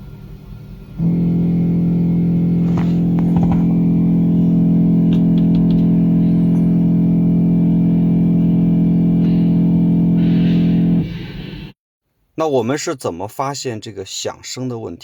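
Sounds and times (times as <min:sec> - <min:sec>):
wiper motor electrical buzz: 0:01.0 - 0:11.2.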